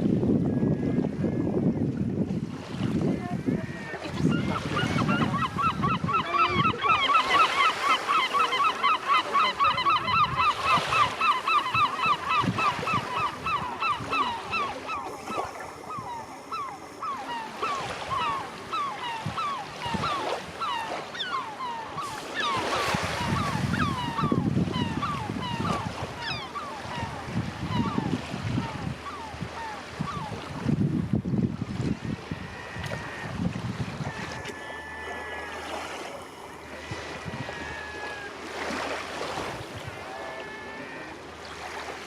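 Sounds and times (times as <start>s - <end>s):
gulls calling: 3.2s - 30.7s, 31.6s - 42.0s.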